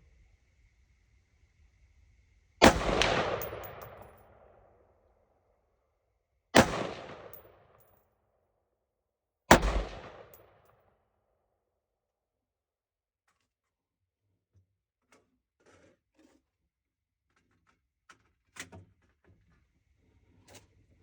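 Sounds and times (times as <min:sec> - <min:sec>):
rifle shots echoing: 0:02.6 - 0:04.1, 0:06.6 - 0:07.4, 0:09.5 - 0:10.4.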